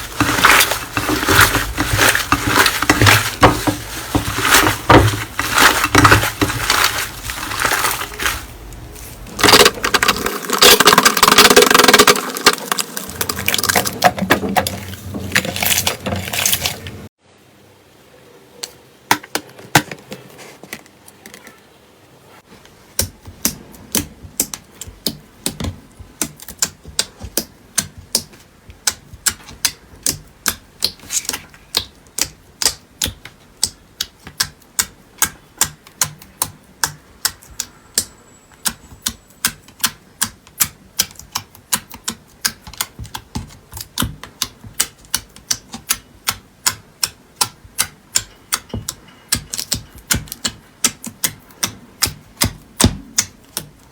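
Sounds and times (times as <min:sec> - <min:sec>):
slime clicking and popping: 0:26.2 - 0:37.6, 0:38.6 - 0:48.6.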